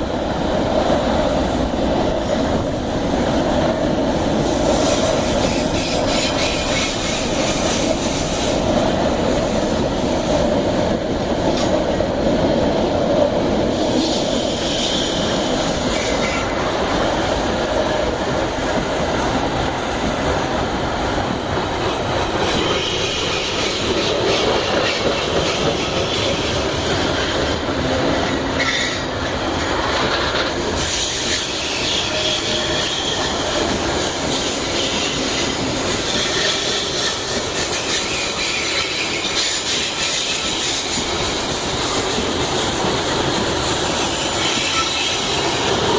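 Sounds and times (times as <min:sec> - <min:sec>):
train wagons rolling on rails: 0:00.0 - 0:45.9
train wheel squeals: 0:04.6 - 0:08.6, 0:13.7 - 0:16.7, 0:22.4 - 0:27.6, 0:28.2 - 0:29.5, 0:30.4 - 0:45.9
rail joint clatter: 0:21.2 - 0:45.9.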